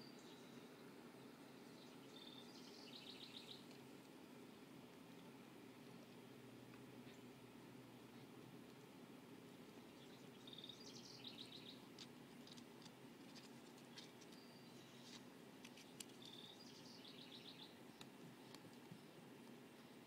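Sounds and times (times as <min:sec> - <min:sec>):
small songbird singing: 0:00.0 - 0:03.8, 0:09.7 - 0:12.1, 0:13.4 - 0:15.2, 0:15.8 - 0:19.2.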